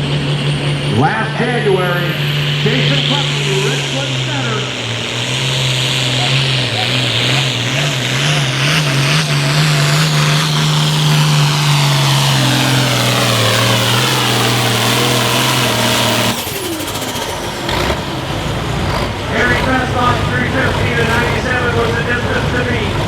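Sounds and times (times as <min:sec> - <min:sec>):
high whine falling in pitch: 0:00.0 - 0:16.4
tractor engine at full throttle: 0:00.0 - 0:23.0.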